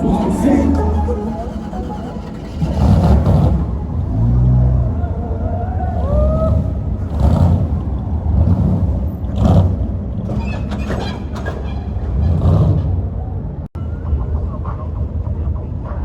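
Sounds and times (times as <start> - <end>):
faint voices: 0.0 - 7.0
car engines rumbling: 0.0 - 16.0.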